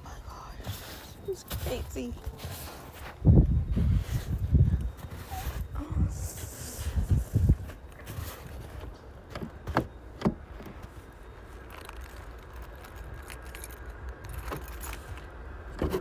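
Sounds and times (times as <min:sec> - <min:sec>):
wind rumble on microphone: 0:00.3 - 0:09.0.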